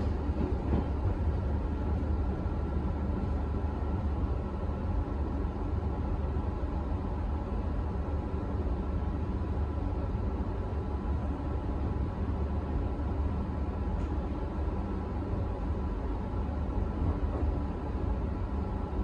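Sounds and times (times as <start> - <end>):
train wheels rumbling: 0.0 - 3.8.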